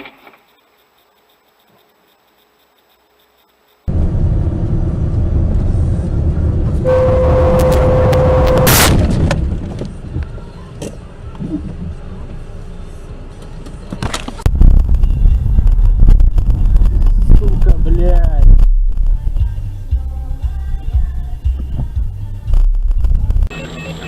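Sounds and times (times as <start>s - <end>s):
car road rumble: 3.9s - 24.0s
car horn blaring: 6.8s - 9.0s
loud crash impact: 8.5s - 9.5s.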